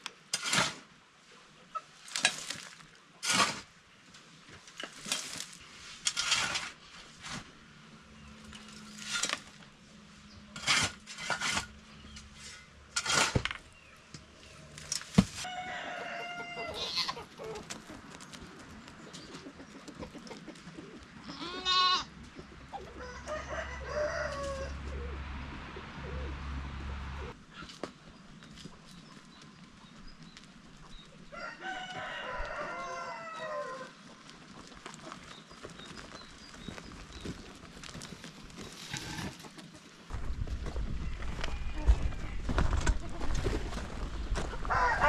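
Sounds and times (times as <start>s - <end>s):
rooster crowing: 15.4s - 17.2s, 23.0s - 24.9s, 31.4s - 33.9s, 44.6s - 45.0s
chickens clucking: 15.6s - 27.8s.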